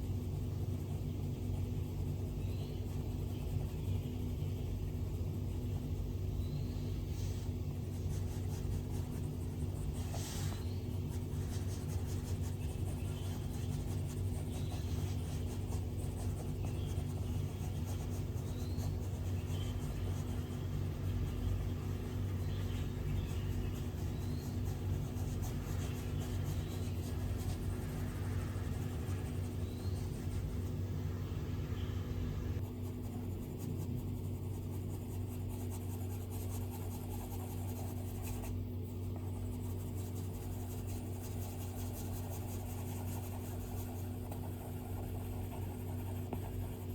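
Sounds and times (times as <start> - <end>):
low hum: 4.5 - 34.3.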